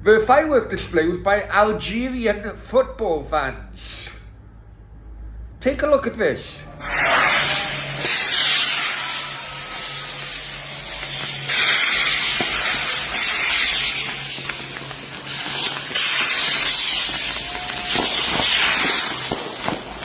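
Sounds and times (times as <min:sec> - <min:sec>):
fireworks hissing bursts: 0:06.7 - 0:20.0
fireworks popping: 0:06.8 - 0:20.0.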